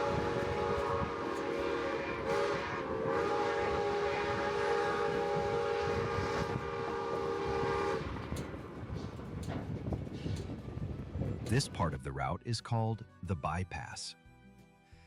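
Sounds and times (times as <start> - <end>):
steam locomotive whistle: 0.0 - 8.4.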